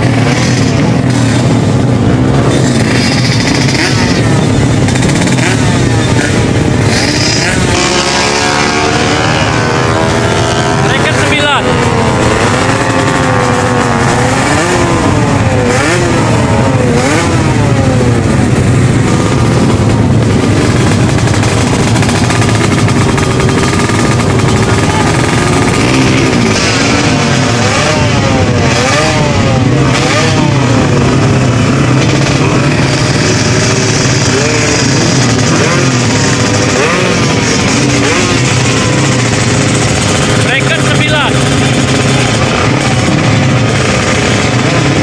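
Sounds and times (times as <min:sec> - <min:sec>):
low engine drone: 0:00.0 - 0:45.0
motorcycle engines revving: 0:00.0 - 0:45.0.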